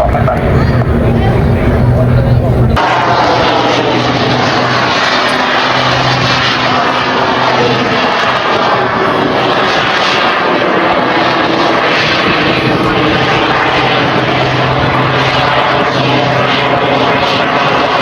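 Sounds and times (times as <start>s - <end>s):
aircraft engines overhead: 0.0s - 18.0s.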